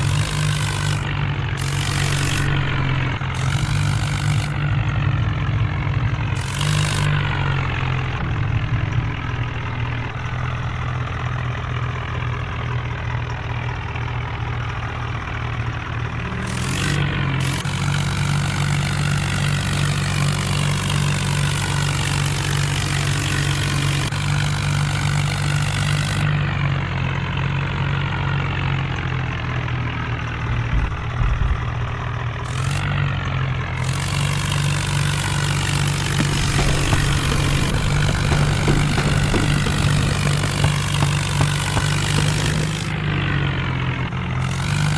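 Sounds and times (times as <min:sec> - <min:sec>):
diesel engines straining: 0:00.0 - 0:44.9.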